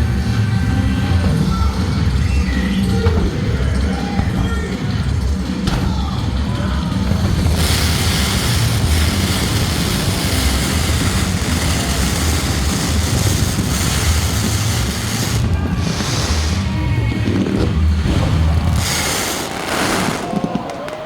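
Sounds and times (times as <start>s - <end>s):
fireworks with pulsing bass: 0.0s - 21.0s
dense hiss: 7.4s - 20.5s.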